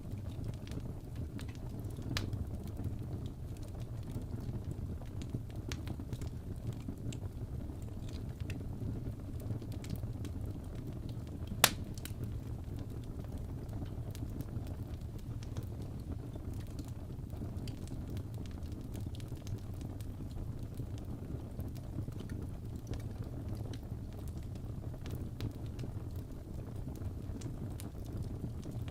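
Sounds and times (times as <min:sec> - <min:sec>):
burning logs rumbling: 0:00.0 - 0:28.9
fire crackling: 0:00.0 - 0:28.9
loud fire pop: 0:11.6 - 0:12.0.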